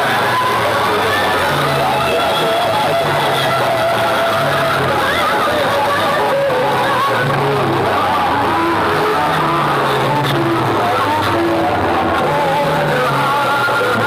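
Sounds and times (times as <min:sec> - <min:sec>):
dj music over loudspeakers: 0:00.0 - 0:14.0.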